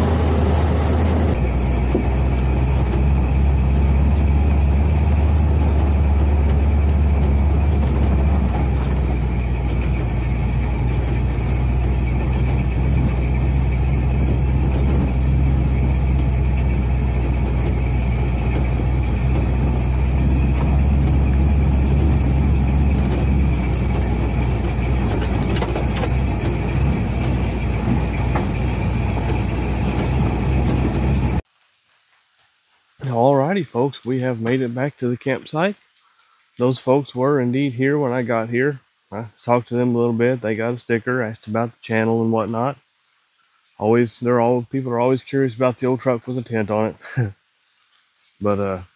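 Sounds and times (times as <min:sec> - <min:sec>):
truck engine and road hum: 0:00.0 - 0:31.4.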